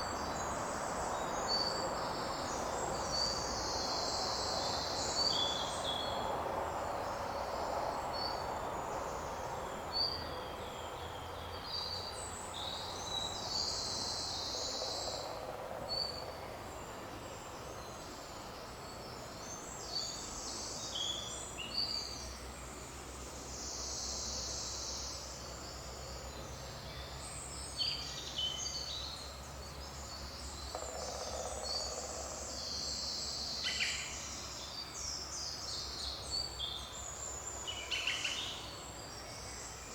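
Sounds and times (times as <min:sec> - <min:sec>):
forest ambience hiss: 0:00.0 - 0:39.9
songbirds chirping and trilling: 0:23.5 - 0:39.9.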